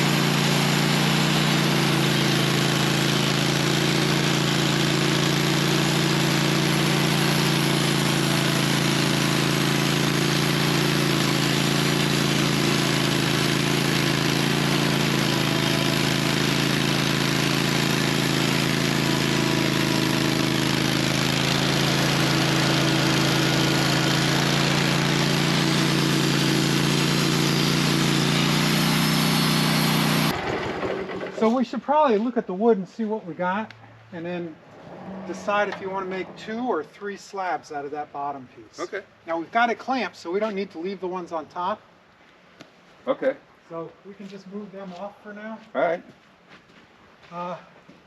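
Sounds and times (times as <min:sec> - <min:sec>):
sawmill engine running: 0:00.0 - 0:31.6.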